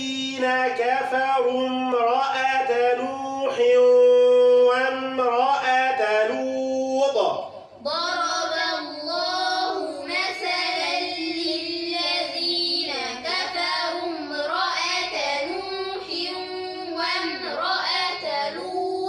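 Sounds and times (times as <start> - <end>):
man reciting: 0.0 - 7.8, 15.0 - 19.0
children chanting: 7.8 - 19.0.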